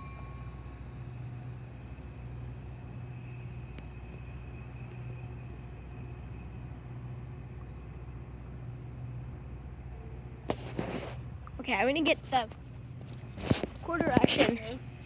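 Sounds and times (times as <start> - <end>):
thin high whine: 0.0 - 6.6
train running with low hum: 0.0 - 15.0.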